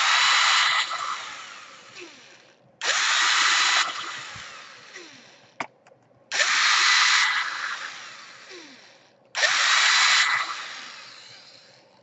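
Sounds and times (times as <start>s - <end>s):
electric screwdriver whirring: 0.0s - 5.6s, 6.3s - 11.8s.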